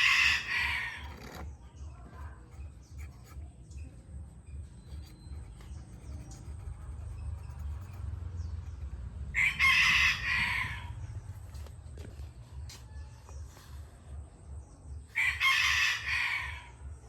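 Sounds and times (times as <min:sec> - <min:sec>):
rooster crowing: 0:00.0 - 0:01.1, 0:09.3 - 0:11.1, 0:15.2 - 0:16.8
steady low hum: 0:00.0 - 0:15.4.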